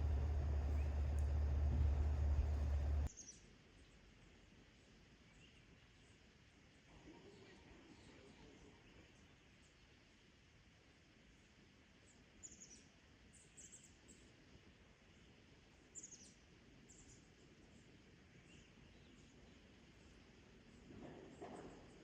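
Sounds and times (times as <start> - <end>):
faint high bird chirps: 0.0 - 3.4
low steady background noise: 0.0 - 22.0.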